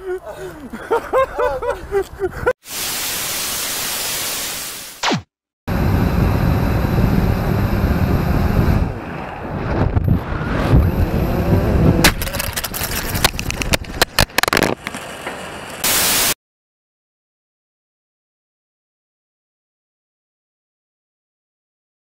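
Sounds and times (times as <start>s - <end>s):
burst of static: 2.7s - 5.3s, 15.8s - 16.4s
wind rumbling on microphone: 5.7s - 14.7s.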